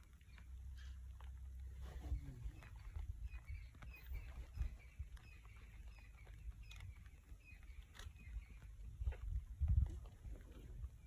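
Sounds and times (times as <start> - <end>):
bird chirping: 1.8 - 9.5.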